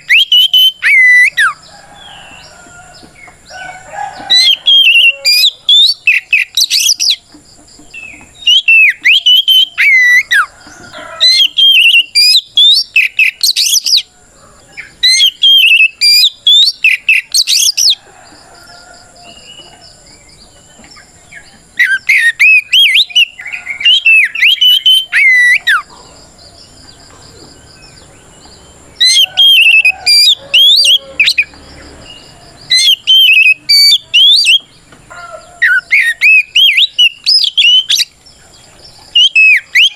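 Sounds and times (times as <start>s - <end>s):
bird singing whistles and chirps: 0.0s - 14.1s, 14.8s - 38.2s, 38.9s - 39.9s.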